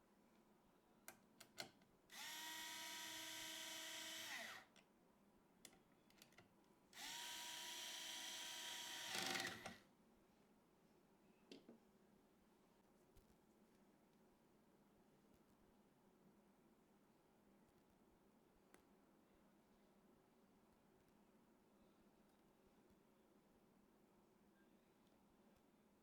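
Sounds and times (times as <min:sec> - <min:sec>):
electric screwdriver motor whine: 0:02.1 - 0:04.7, 0:07.0 - 0:09.8
screwdriver rattle: 0:08.6 - 0:09.8.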